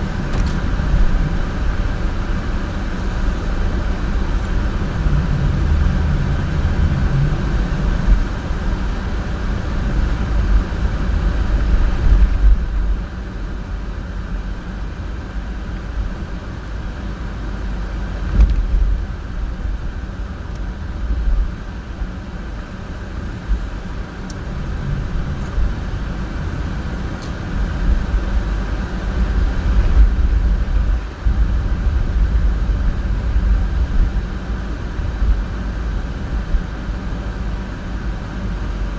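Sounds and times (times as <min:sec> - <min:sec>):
car engine and tyre rumble: 0:00.0 - 0:38.9
car bumps: 0:18.3 - 0:19.1.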